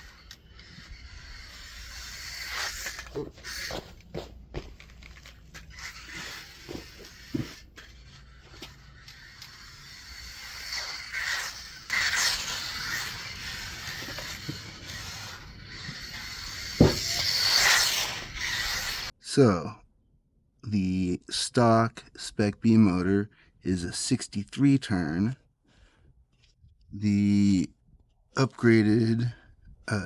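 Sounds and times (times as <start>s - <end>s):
toy truck motor whining: 0.0s - 19.2s
tires scuffing on ground: 2.7s - 9.0s.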